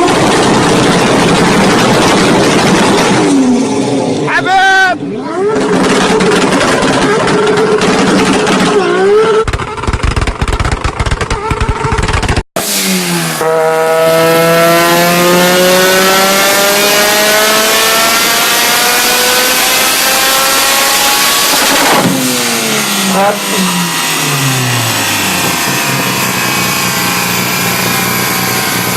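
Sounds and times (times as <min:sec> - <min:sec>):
engine accelerating hard: 0:00.0 - 0:04.4, 0:05.1 - 0:10.7, 0:11.3 - 0:28.9
exhaust pops and crackles: 0:05.6 - 0:12.4.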